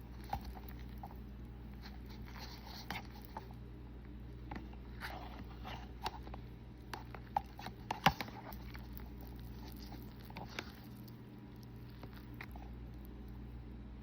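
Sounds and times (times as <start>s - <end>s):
steady low hum: 0.0s - 14.0s
chewing and mouth smacks: 6.0s - 13.4s.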